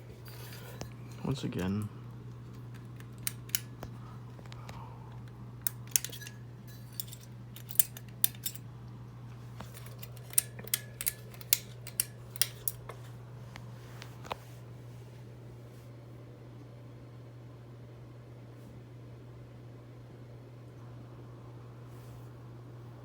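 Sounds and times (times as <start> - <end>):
ceiling fan motor humming: 0.0 - 23.0
sharp metallic clicks: 3.0 - 3.8, 9.6 - 13.0.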